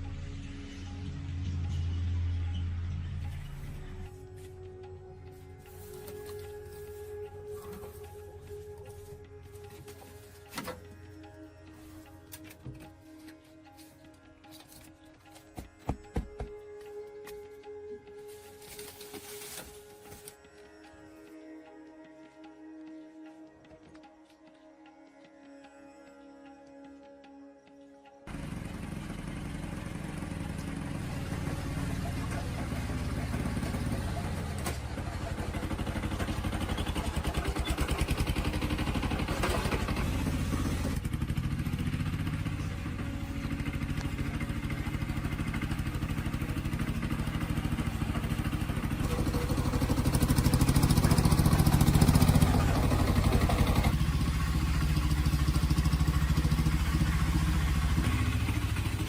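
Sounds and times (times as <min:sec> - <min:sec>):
vehicle engine running: 0:00.0 - 0:14.8, 0:28.3 - 0:59.0.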